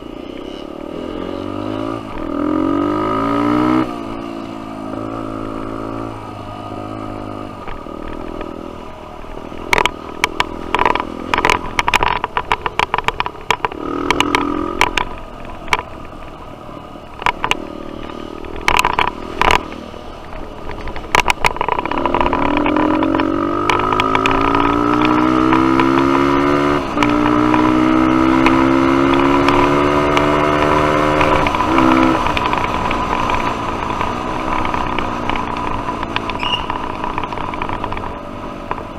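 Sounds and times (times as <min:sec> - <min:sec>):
dirt bike engine revving: 0:00.4 - 0:08.7, 0:13.6 - 0:15.0, 0:21.6 - 0:38.2
sharp knocks and rattles: 0:09.4 - 0:16.5, 0:17.2 - 0:38.9.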